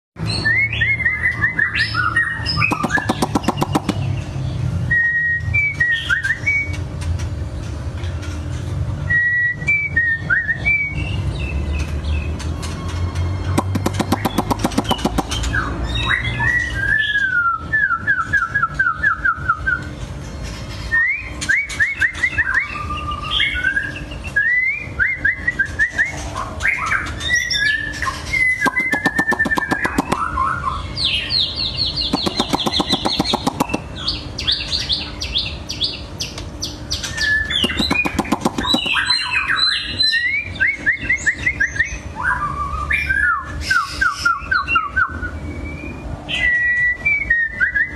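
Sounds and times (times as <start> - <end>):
bird singing whistled phrases: 0.2 - 4.0, 4.9 - 6.7, 9.1 - 11.3, 13.6 - 19.9, 20.9 - 47.9
fast clicking rattles: 2.7 - 4.0, 13.6 - 15.4, 28.6 - 30.2, 32.1 - 33.8, 37.6 - 39.0.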